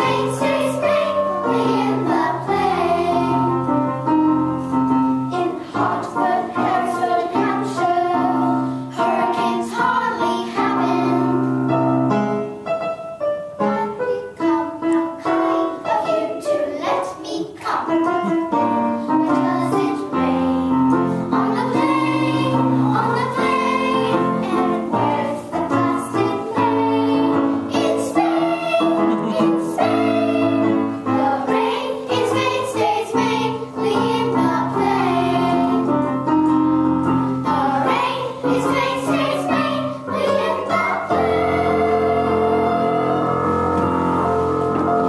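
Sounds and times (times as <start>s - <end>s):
voices singing together: 0.0s - 3.9s, 5.3s - 11.4s, 19.2s - 36.2s, 37.4s - 44.6s
instrumental accompaniment: 17.8s - 45.0s.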